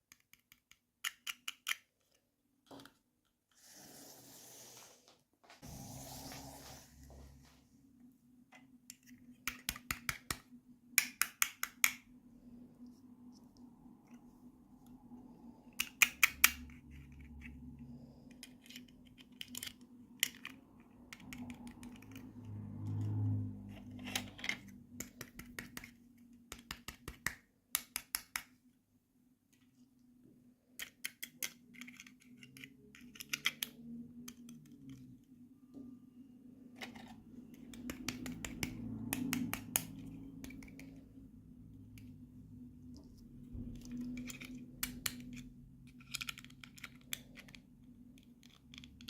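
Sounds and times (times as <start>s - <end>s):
toy packaging clicks and snips: 0.0s - 2.2s, 18.3s - 22.4s, 43.8s - 49.0s.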